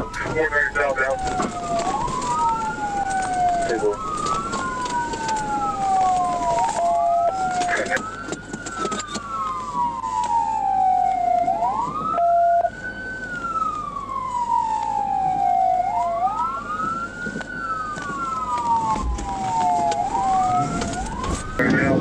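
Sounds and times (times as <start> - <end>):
police siren wailing: 0.0 - 22.0
short steady siren tone: 18.6 - 22.0.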